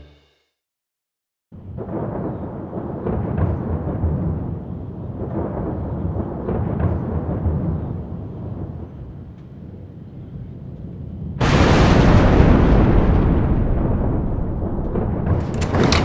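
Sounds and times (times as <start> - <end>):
rumbling thunder: 1.6 - 8.9, 11.4 - 16.0
thunder cracks: 1.7 - 7.8, 11.4 - 16.0.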